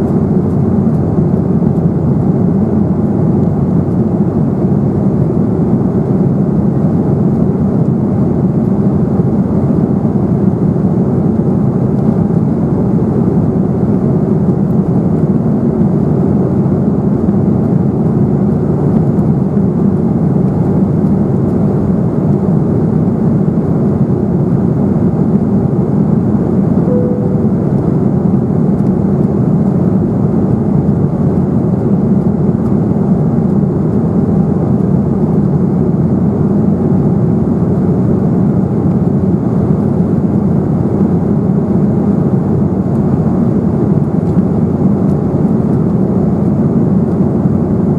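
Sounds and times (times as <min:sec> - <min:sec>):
airliner cabin drone: 0:00.0 - 0:47.9.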